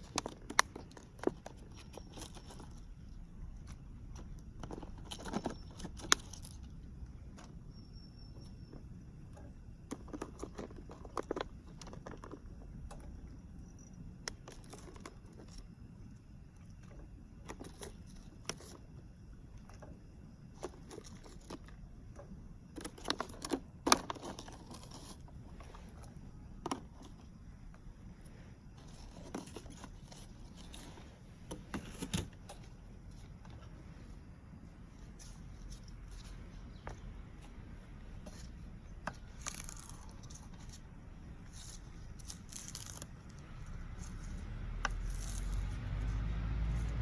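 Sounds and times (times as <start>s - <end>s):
small objects clicking and rattling: 3.7s - 6.7s, 9.8s - 13.1s, 39.1s - 40.8s, 41.5s - 45.8s.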